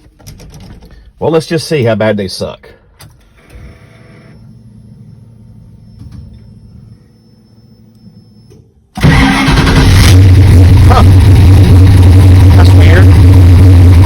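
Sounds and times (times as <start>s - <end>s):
engine starting and running: 8.9s - 14.0s.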